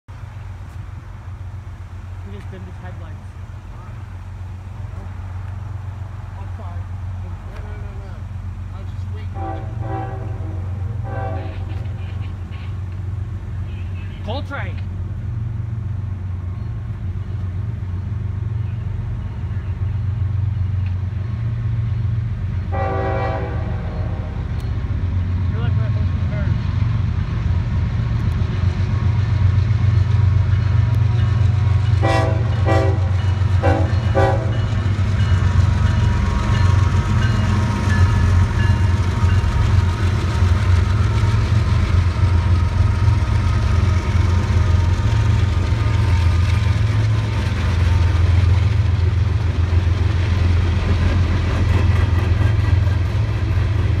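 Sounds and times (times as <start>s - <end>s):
diesel locomotives rumbling: 0.1s - 54.0s
train horn blasts: 9.3s - 12.3s, 22.7s - 24.5s, 32.0s - 34.8s
hopper cars rolling by: 23.6s - 54.0s.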